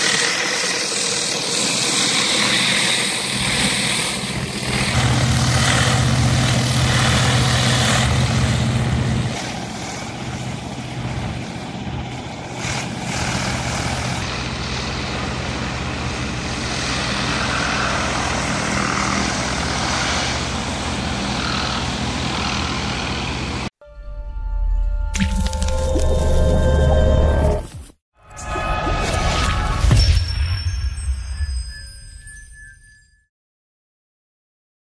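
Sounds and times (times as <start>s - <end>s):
pressure washer engine drone: 0.0s - 23.7s.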